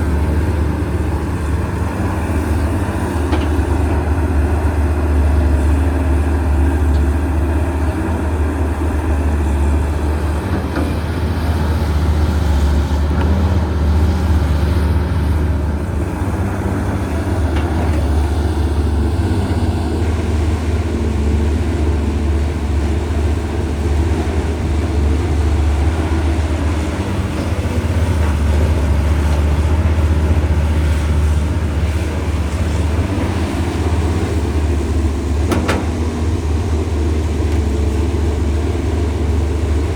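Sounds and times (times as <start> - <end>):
excavator diesel engine humming: 0.0 - 39.9.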